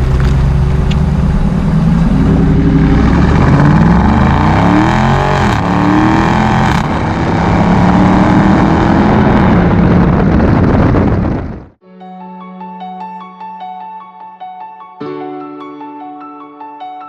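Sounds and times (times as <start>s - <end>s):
car engine accelerating: 0.0s - 11.8s.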